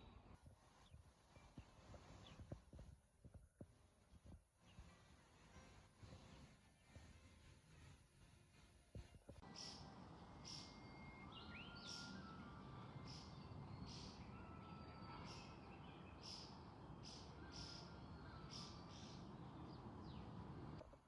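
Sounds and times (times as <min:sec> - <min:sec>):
low steady background noise: 0:00.0 - 0:21.0.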